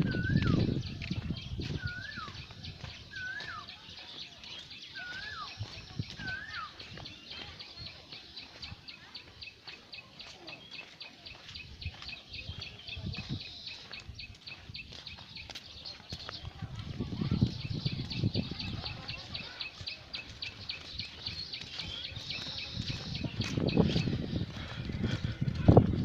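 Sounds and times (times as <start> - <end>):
whistled bird call: 0.0 - 0.9, 1.8 - 2.5, 3.1 - 3.8, 4.8 - 6.8.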